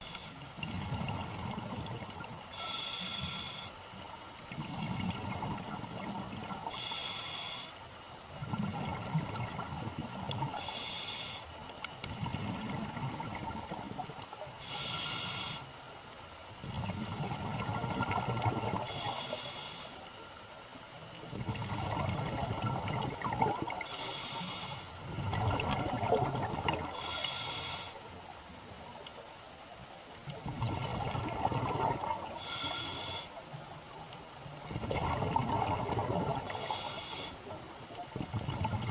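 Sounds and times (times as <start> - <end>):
regulator hissing inhale: 2.5 - 3.8, 6.7 - 7.8, 10.5 - 11.6, 14.6 - 15.7, 18.8 - 20.1, 23.8 - 25.0, 26.9 - 28.1, 32.4 - 33.4, 36.5 - 37.5
bubbling exhaled air: 21.4 - 27.2, 30.4 - 33.1, 34.7 - 37.3.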